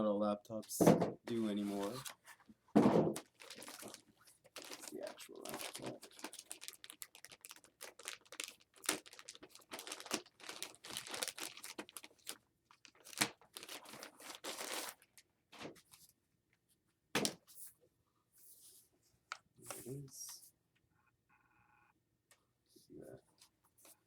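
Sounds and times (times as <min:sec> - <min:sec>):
packaging crinkling and tearing: 0:01.6 - 0:02.2, 0:03.2 - 0:15.2.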